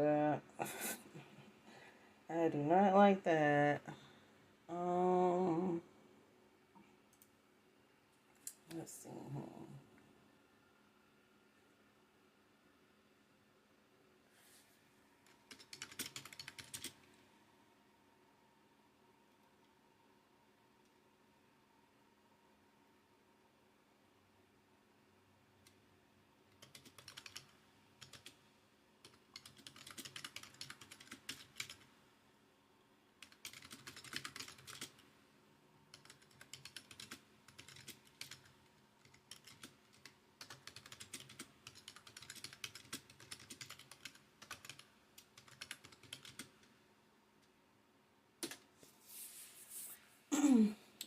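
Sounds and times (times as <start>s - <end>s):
typing on a computer keyboard: 15.3s - 17.1s, 26.5s - 28.4s, 29.0s - 31.9s, 33.2s - 35.1s, 35.9s - 46.6s, 48.4s - 48.7s.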